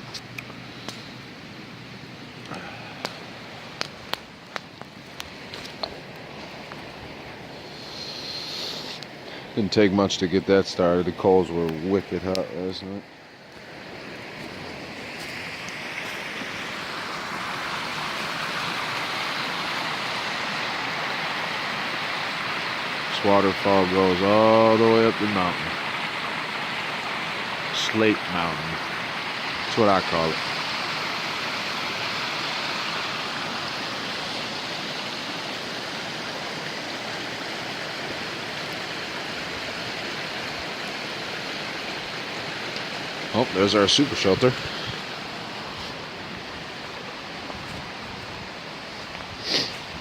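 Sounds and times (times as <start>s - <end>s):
waterfall roaring: 11.0s - 50.0s.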